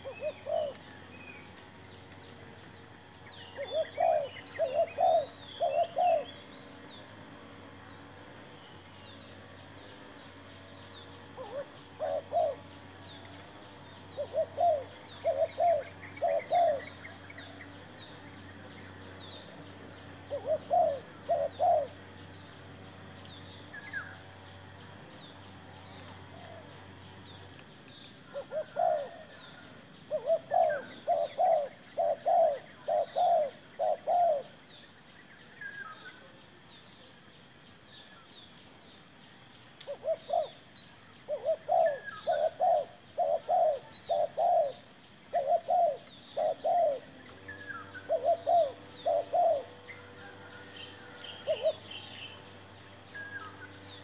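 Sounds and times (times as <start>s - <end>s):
dove cooing: 0.0s - 1.4s, 3.0s - 6.5s, 10.9s - 22.4s, 28.3s - 34.6s, 39.9s - 54.0s
small birds chirping: 0.0s - 54.0s.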